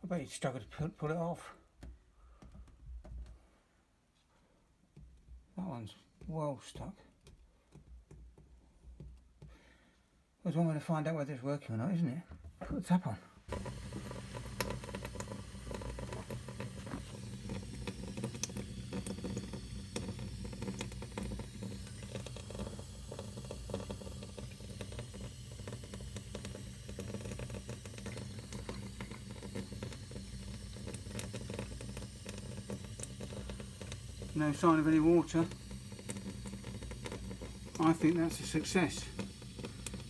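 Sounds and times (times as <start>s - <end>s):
tap water running into sink: 13.5s - 40.0s.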